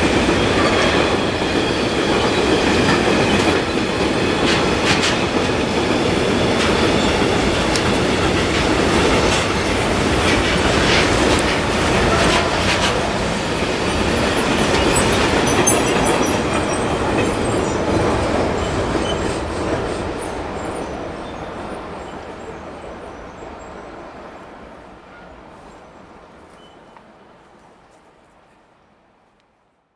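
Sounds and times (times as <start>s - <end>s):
train wheels clattering over rails: 0.0s - 23.2s.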